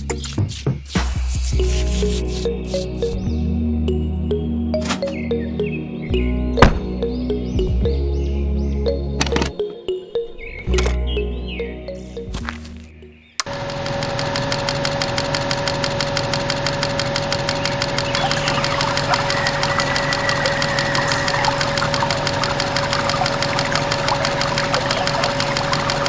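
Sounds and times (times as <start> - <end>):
small electric motor humming: 13.4 - 26.0.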